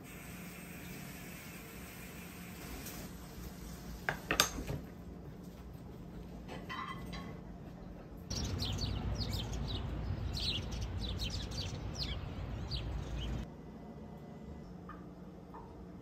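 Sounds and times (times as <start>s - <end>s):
low outdoor background noise: 0.0s - 16.0s
birds chirping and singing: 8.3s - 13.4s.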